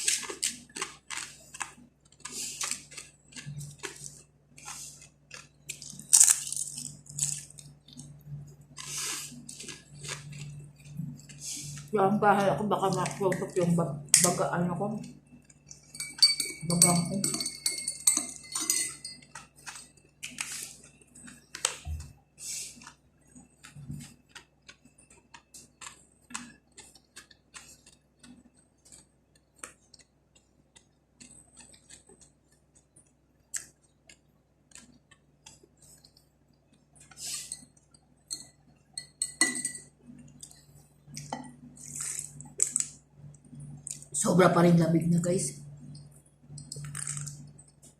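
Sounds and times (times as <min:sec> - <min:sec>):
steady low hum: 0:00.0 - 0:47.9
utensils clinking on plate and glass: 0:15.9 - 0:19.4, 0:38.3 - 0:39.9.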